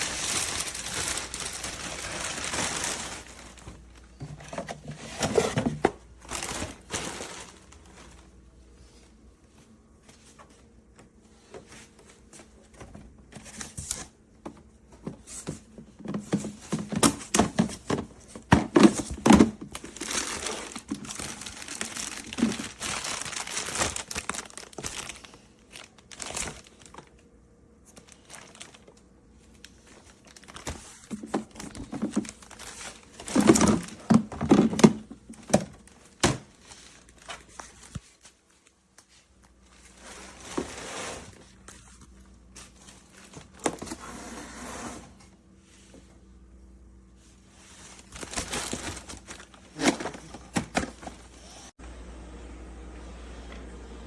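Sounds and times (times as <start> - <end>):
material crinkling and rustling: 0.0 - 44.0, 47.1 - 51.4.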